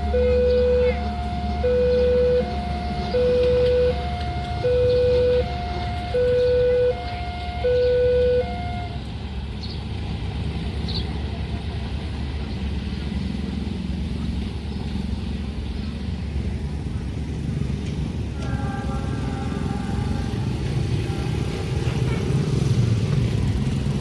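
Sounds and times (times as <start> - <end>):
two-note warning tone: 0.0 - 9.0
rumble of road vehicles: 0.0 - 24.0.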